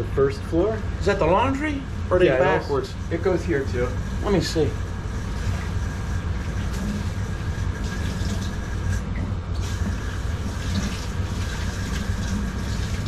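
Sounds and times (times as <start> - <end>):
steady low rumble: 0.0 - 13.0
water running from faucet: 2.9 - 13.0.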